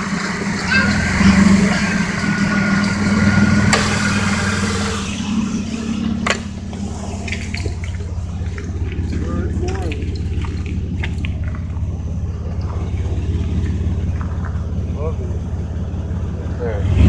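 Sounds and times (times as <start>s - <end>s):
pickup truck engine idling: 0.0s - 17.0s.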